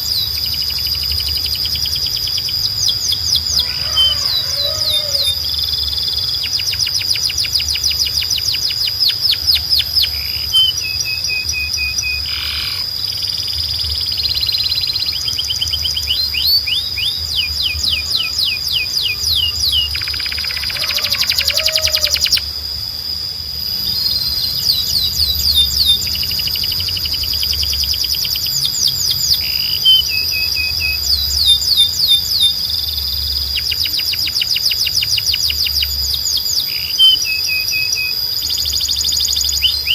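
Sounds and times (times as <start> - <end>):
canary singing trills: 0.0 - 39.9
steady high whistle: 36.6 - 39.9.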